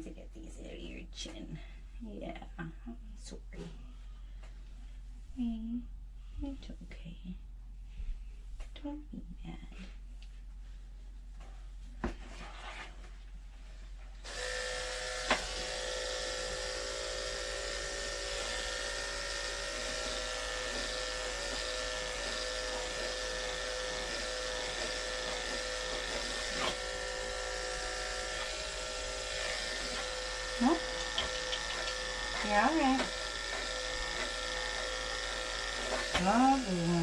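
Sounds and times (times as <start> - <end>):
electric pet clippers buzzing: 14.2 - 37.0.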